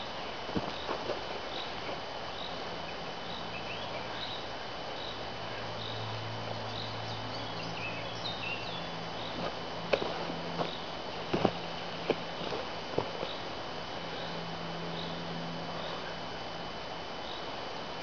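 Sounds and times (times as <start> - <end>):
low steady hum: 0.0 - 18.0
steady woodland hiss: 0.0 - 18.0
small bird chirping: 6.7 - 9.4.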